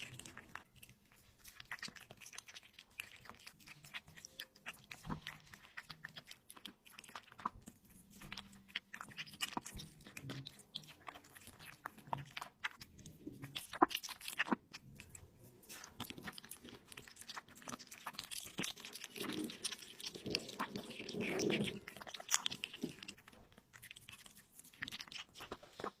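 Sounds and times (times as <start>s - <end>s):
person chewing meat: 0.0s - 26.0s
sticky mouth clicks: 1.6s - 26.0s.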